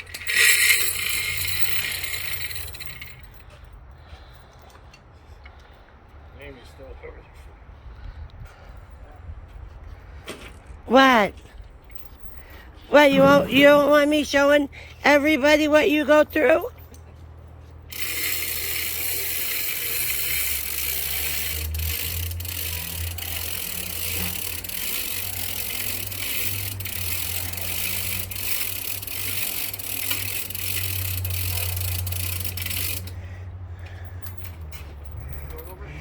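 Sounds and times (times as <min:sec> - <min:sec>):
saw hissing rattle: 0:00.0 - 0:03.2
sawmill engine hum: 0:00.0 - 0:03.3.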